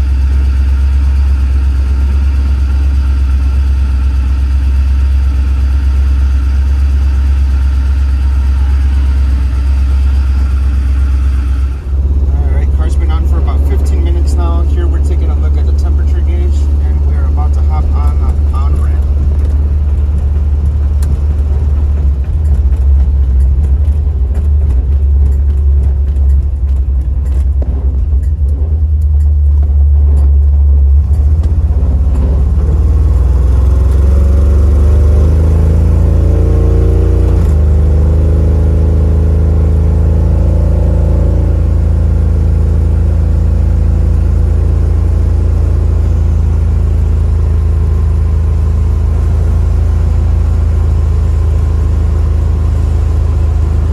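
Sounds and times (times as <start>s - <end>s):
car engine rumbling: 0.0s - 53.9s.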